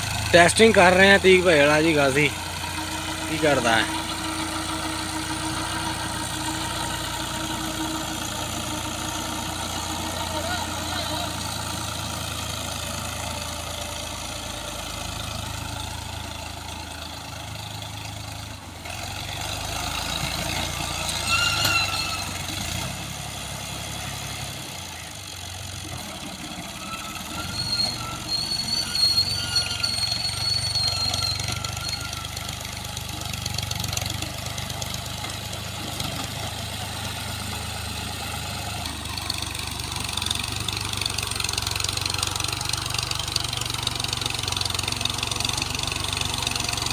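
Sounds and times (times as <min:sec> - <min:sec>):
tractor diesel engine running: 0:00.0 - 0:46.9
brief high-pitched squeals: 0:21.0 - 0:22.4, 0:26.7 - 0:32.5.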